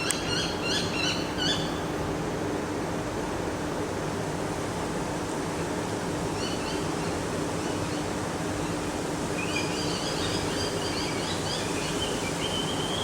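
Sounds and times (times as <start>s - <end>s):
small bird chirping: 9.4s - 13.0s.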